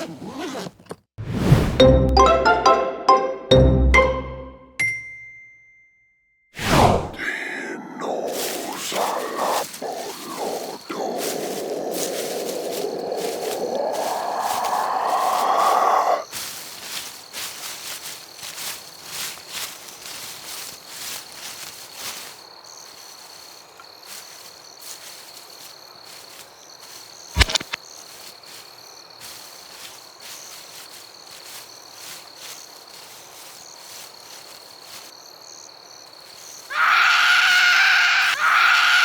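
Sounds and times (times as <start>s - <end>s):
crickets chirping: 7.2s - 39.0s
loud held cry: 12.8s - 16.2s, 36.7s - 39.0s
sharp loud click: 27.4s - 27.8s.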